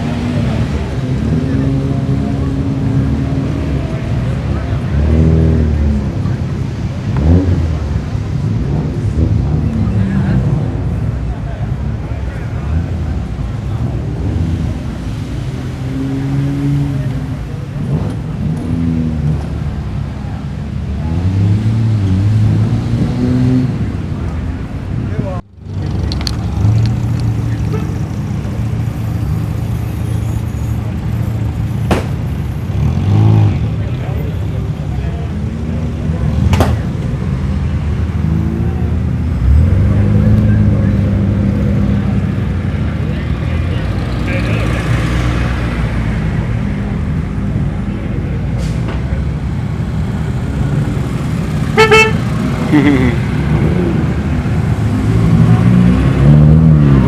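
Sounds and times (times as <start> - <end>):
cars accelerating past: 0.0 - 57.0
louder engine running: 48.6 - 55.4.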